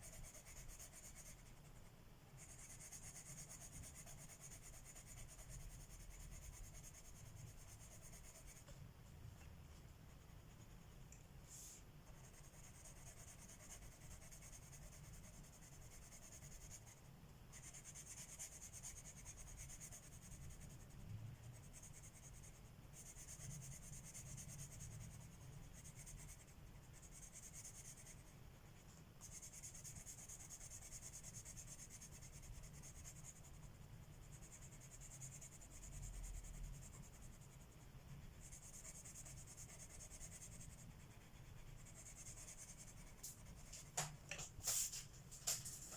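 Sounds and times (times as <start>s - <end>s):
pencil shading on paper: 0.0s - 8.7s, 10.0s - 43.9s.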